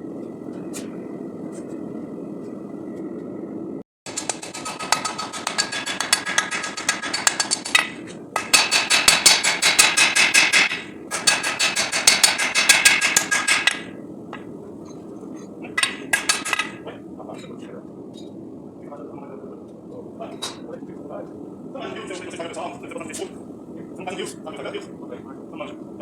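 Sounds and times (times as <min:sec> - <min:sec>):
steady rushing noise: 0:00.0 - 0:26.0
hammer striking steel: 0:04.1 - 0:14.0, 0:15.8 - 0:16.8.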